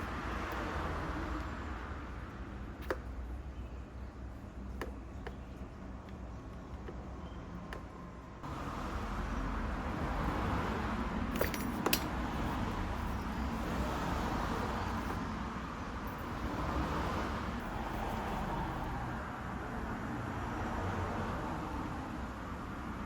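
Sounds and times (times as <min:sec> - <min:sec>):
metallic clinks of tools: 0:11.3 - 0:12.2.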